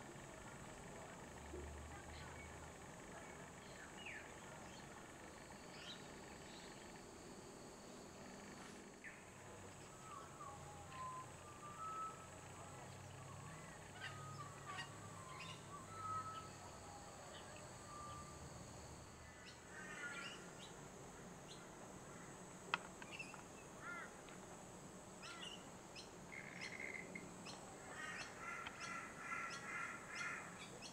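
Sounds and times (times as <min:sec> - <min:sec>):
birds chirping: 0:08.3 - 0:18.3.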